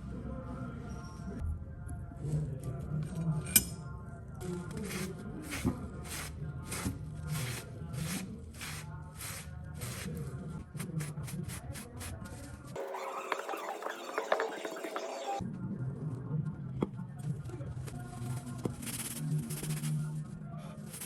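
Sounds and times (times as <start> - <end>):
scissor blade rasping on abrasive: 4.8 - 10.1.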